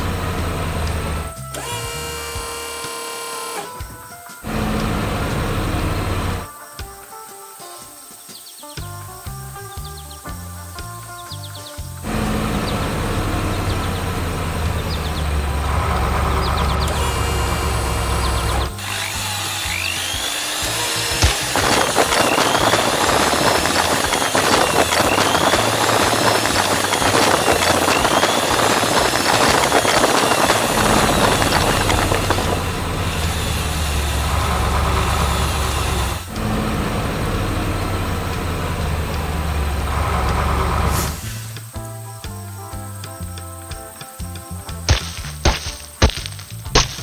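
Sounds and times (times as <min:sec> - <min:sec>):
heavy engine running low: 0:00.0 - 0:02.8, 0:04.4 - 0:06.5, 0:12.0 - 0:41.7
loud rasping grinding noise: 0:00.0 - 0:03.8, 0:04.4 - 0:06.5, 0:12.0 - 0:41.7.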